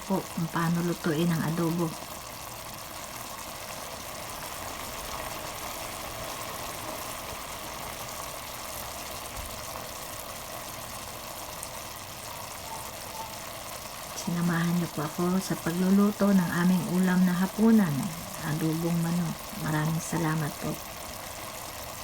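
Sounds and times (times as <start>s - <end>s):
stew bubbling in a pot: 0.0s - 22.0s.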